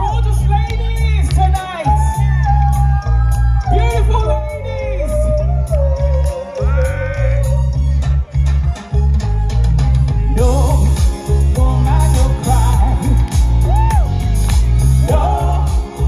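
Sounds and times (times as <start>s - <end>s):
band music with heavy bass: 0.0s - 16.0s
person singing: 1.7s - 7.8s, 10.2s - 16.0s
steady drum beat: 9.6s - 16.0s.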